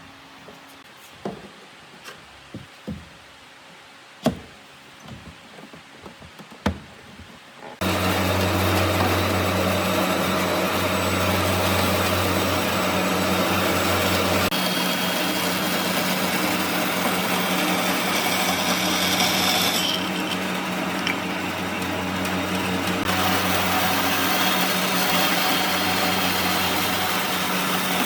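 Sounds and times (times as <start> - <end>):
power tool running: 7.8 - 28.0.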